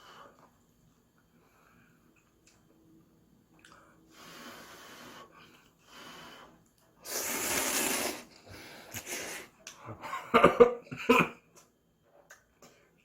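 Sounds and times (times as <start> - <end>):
slurping noodles: 7.0 - 9.5.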